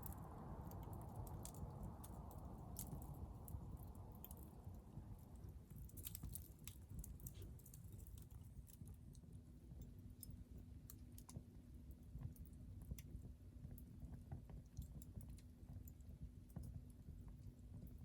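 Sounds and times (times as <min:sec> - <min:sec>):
low rumble: 0:00.0 - 0:05.9
firewood crackling and popping: 0:00.0 - 0:18.0.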